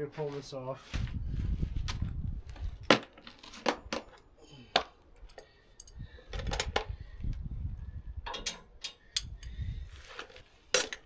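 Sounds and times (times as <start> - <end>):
wind rumbling on microphone: 0.9 - 3.0, 5.8 - 10.2
metal wrenches clinking: 8.3 - 9.4, 10.2 - 11.0.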